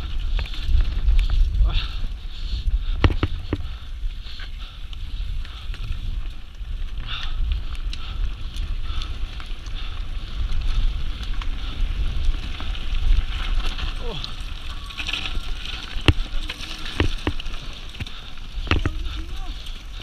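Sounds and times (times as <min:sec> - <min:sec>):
wind rumbling on microphone: 0:00.0 - 0:20.0
bike knocks and rattles: 0:03.0 - 0:03.7, 0:12.3 - 0:19.4.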